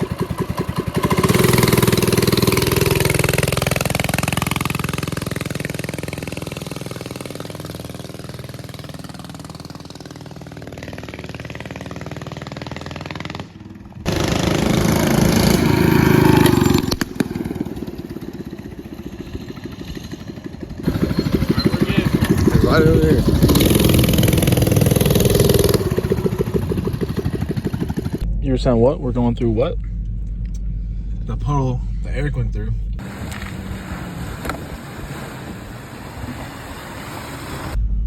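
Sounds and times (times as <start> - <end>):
mini bike engine running: 0.0 - 28.2
low vehicle rumble: 0.0 - 38.0.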